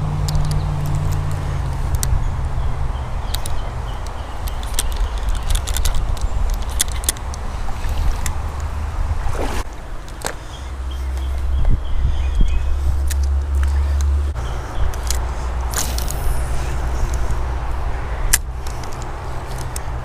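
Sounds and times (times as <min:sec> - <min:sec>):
flowing river water: 0:00.0 - 0:11.8
sharp clicks and knocks: 0:03.3 - 0:07.4
short whoosh: 0:07.7 - 0:09.7.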